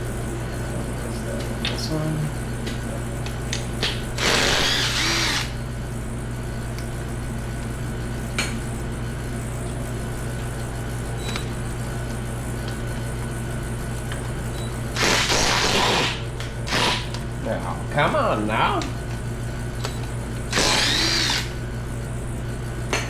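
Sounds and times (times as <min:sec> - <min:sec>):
power tool running: 0:03.5 - 0:05.6, 0:14.8 - 0:17.4, 0:19.8 - 0:21.7.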